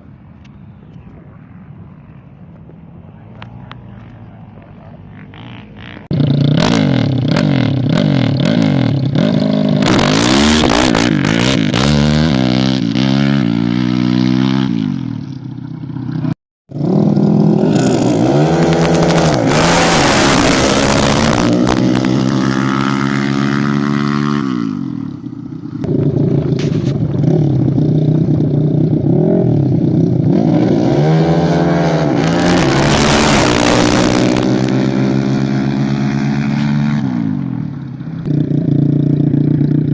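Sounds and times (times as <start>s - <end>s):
atv engines revving: 0.0s - 39.9s.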